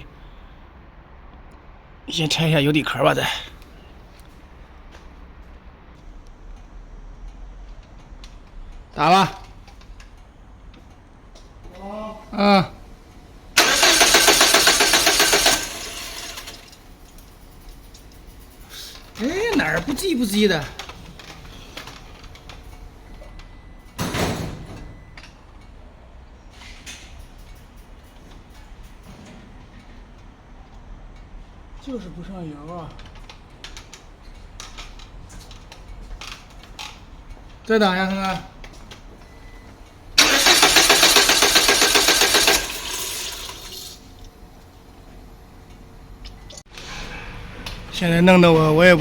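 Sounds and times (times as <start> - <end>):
noisy mechanical burst: 13.0 - 17.1, 40.2 - 44.2
engine cranking on starter motor: 13.0 - 22.6, 40.2 - 44.3.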